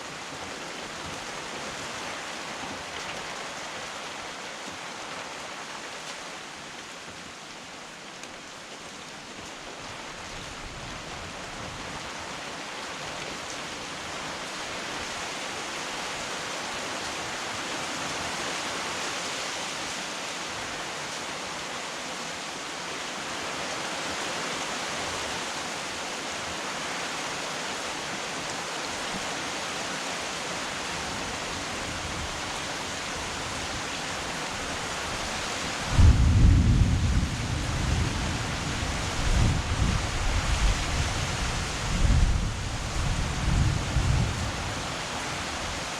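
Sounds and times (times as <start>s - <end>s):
heavy rain hissing: 27.6s - 45.9s
deep thunder clap: 35.9s - 38.6s.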